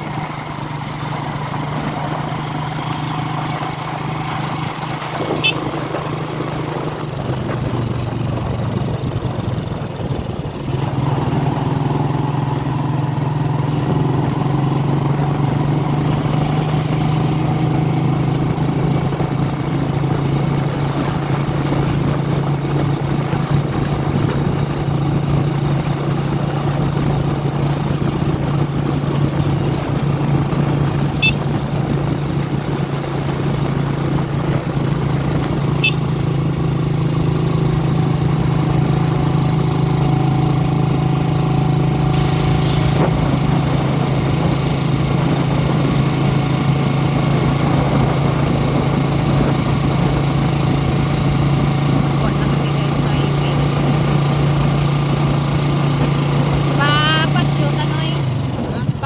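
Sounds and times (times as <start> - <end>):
motorcycle engine droning: 0.0 - 59.0.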